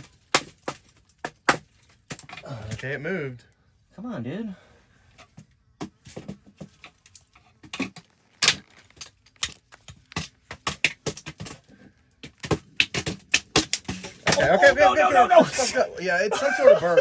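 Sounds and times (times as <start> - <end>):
stick hitting rock: 12.4 - 15.3.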